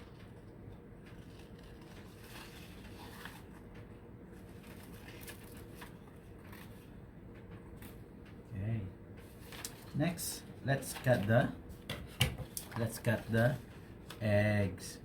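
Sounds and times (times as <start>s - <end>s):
paper rustling: 0.0s - 6.9s, 9.2s - 10.1s, 10.8s - 14.3s
low background hum: 0.0s - 15.0s.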